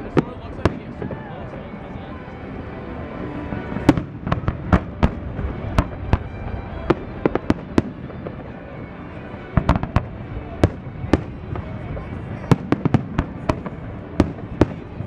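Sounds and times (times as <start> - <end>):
fireworks bursting: 3.5 - 15.0.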